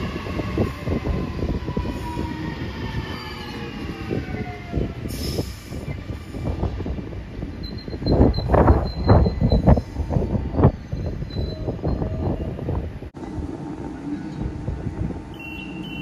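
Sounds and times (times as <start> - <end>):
train wheels squealing: 2.0 - 3.9, 7.5 - 12.7, 15.3 - 16.0.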